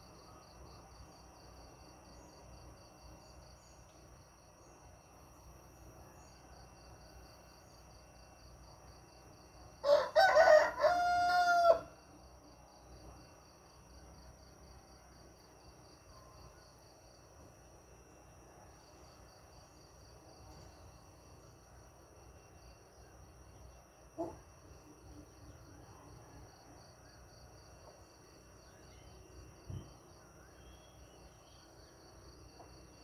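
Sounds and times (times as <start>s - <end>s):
insects chirping: 0.0s - 33.0s
rooster crowing: 9.8s - 12.0s.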